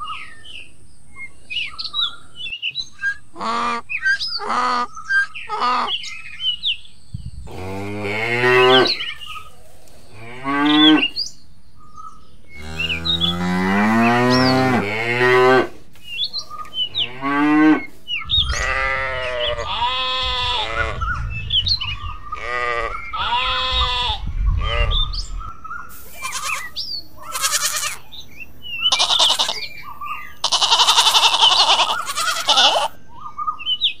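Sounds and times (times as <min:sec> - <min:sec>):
small birds chirping: 0:00.0 - 0:34.0
goat bleating: 0:18.5 - 0:21.0, 0:22.4 - 0:24.9, 0:26.0 - 0:28.1, 0:28.8 - 0:29.8, 0:30.4 - 0:33.0.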